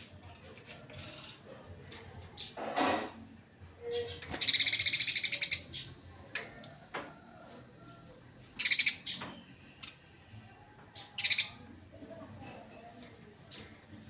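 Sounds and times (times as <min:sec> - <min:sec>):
sparrow harsh chattering call: 0:03.9 - 0:05.9, 0:08.6 - 0:09.2, 0:11.2 - 0:11.6.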